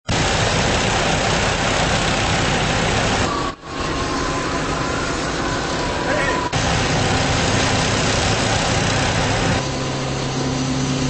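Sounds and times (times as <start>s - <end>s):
fire truck engine running: 0.0s - 11.0s
thin steady whine: 0.1s - 11.0s.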